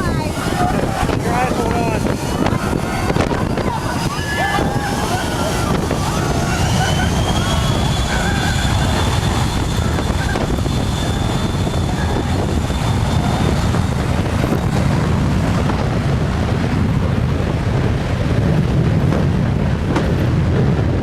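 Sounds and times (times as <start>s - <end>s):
jet engines roaring: 0.0s - 21.0s
wind buffeting microphone: 0.0s - 21.0s
thin high whine: 0.4s - 14.6s.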